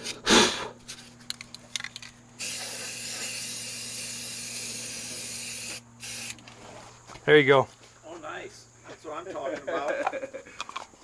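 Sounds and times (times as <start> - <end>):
aerosol spray can hissing: 2.4 - 6.4.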